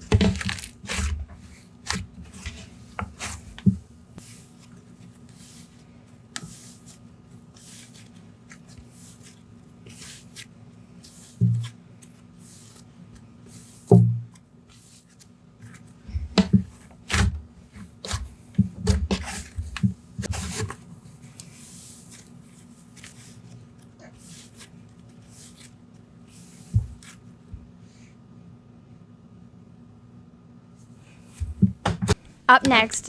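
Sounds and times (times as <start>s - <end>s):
slime squelching and popping: 0.0s - 1.1s.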